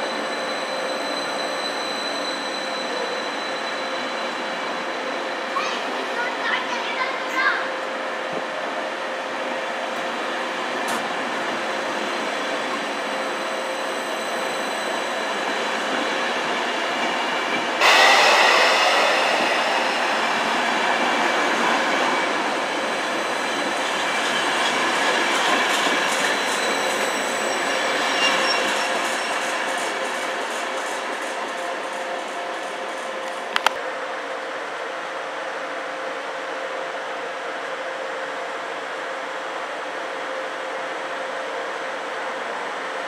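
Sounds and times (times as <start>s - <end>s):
train coaches rolling past: 7.7s - 33.5s.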